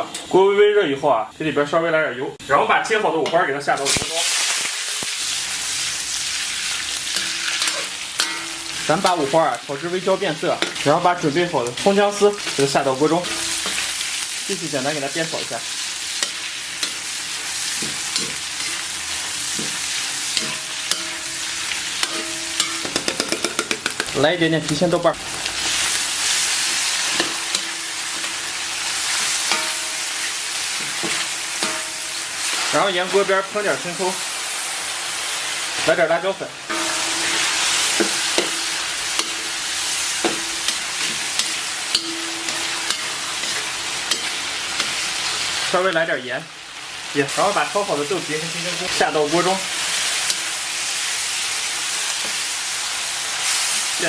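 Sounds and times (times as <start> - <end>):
meat sizzling in hot oil: 0.0 - 54.0
spatula scraping a pan: 11.8 - 24.1, 25.6 - 32.8, 36.7 - 45.6
utensil scraping and clicking on pan: 22.0 - 24.8.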